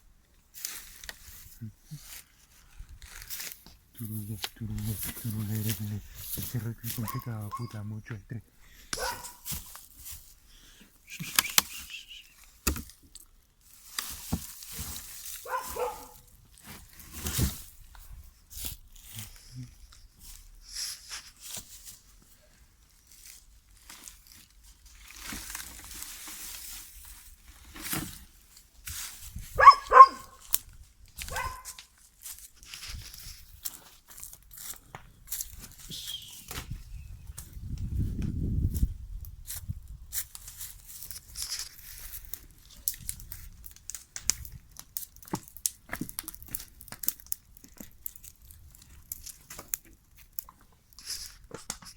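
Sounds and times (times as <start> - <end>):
dog barking: 7.0 - 7.8, 9.0 - 9.5, 15.4 - 16.3, 29.6 - 30.4, 31.3 - 31.8.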